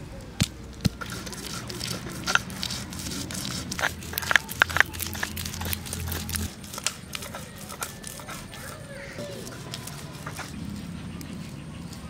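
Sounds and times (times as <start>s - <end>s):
stone scraping and crushing paste: 0.7s - 10.7s
stone clicking on stone: 3.6s - 8.6s.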